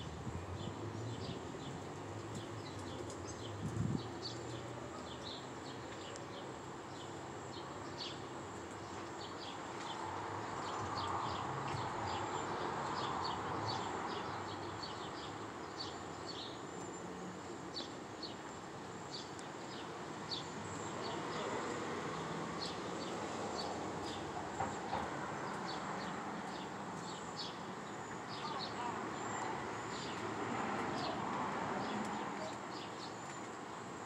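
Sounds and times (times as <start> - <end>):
small birds chirping: 0.6 - 17.0, 17.7 - 33.9.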